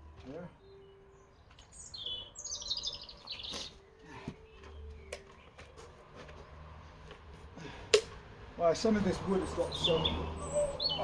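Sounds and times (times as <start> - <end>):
songbird singing high notes: 9.3 - 11.0.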